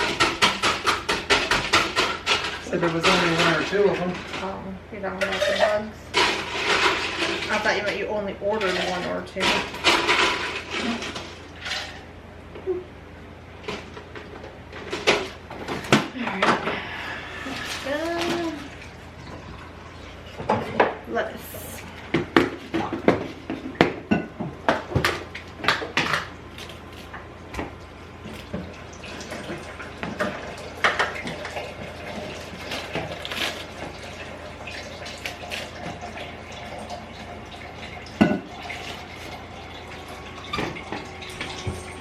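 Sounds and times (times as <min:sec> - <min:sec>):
dishes clattering: 0:05.2 - 0:07.7, 0:38.2 - 0:39.0
water running from tap: 0:05.3 - 0:11.8, 0:17.3 - 0:20.3, 0:27.6 - 0:42.0.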